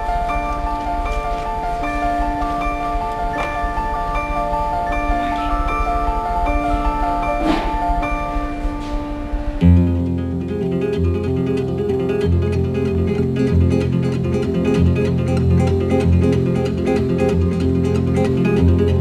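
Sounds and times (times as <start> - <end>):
chiming mallet percussion: 0.0 - 9.6
acoustic guitar picking: 9.6 - 19.0.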